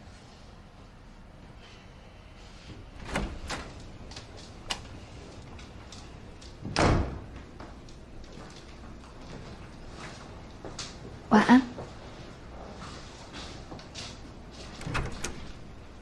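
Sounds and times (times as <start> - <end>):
door shutting thud: 3.0 - 3.9, 6.6 - 7.3, 14.8 - 15.8
door clicks and knocks: 3.0 - 5.0, 14.8 - 16.0.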